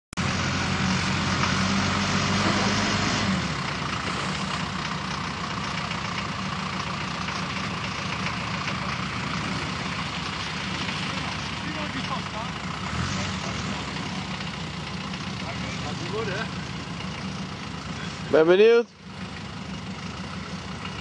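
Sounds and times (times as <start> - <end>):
engine running: 0.2 - 21.0.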